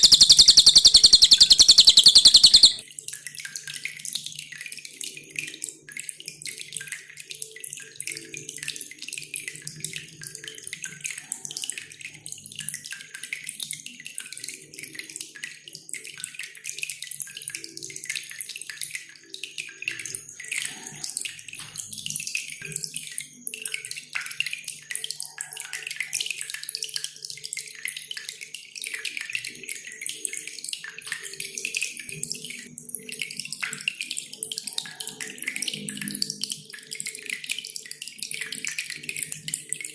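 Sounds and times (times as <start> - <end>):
songbird twittering high chirps: 0.0 - 2.8
water dripping and trickling: 0.0 - 39.9.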